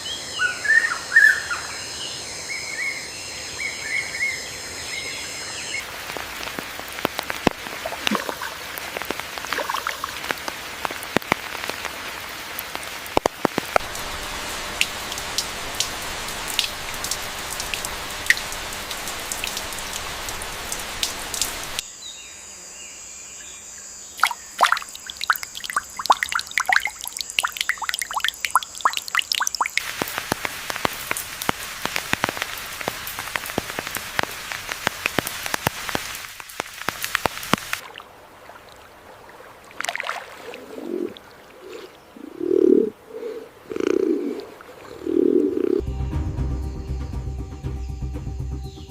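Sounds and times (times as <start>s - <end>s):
rain hiss: 4.2s - 21.9s, 24.2s - 39.2s
raindrops pattering and dripping: 5.8s - 21.8s, 24.2s - 37.9s
high insect whine: 13.8s - 29.7s, 45.1s - 48.9s
dove cooing: 40.6s - 45.8s.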